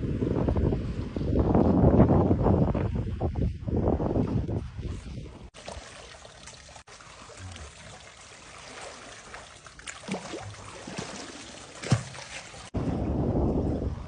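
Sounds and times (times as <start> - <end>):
water splashes: 2.7 - 13.2
water trickling: 5.6 - 12.8.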